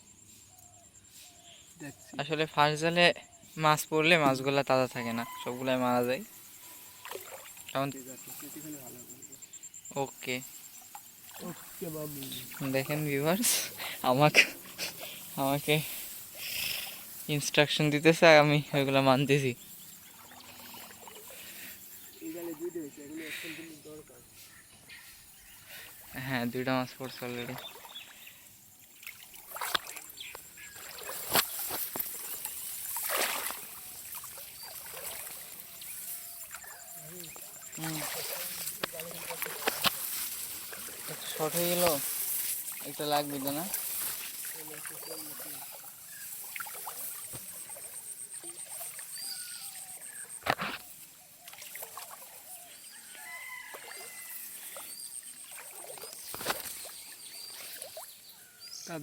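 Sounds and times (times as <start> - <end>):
birds chirping and calling: 0.4 - 59.0
water splashing and trickling: 3.7 - 59.0.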